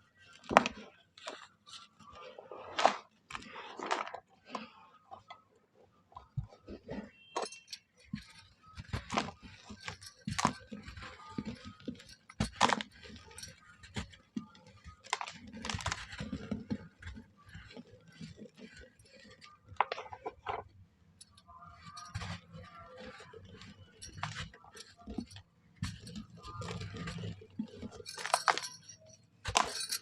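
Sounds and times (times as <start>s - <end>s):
dry mud shapes crumbling: 6.1s - 30.0s.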